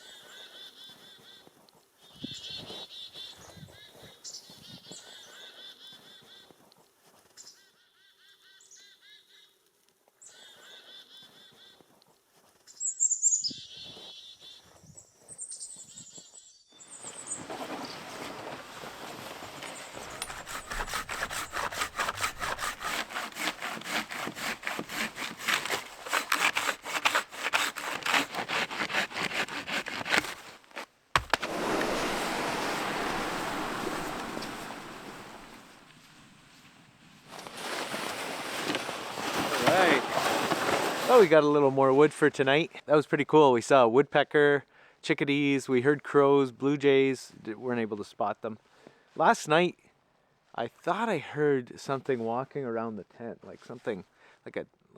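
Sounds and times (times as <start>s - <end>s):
hand saw cutting wood: 17.4s - 36.1s, 37.4s - 41.3s.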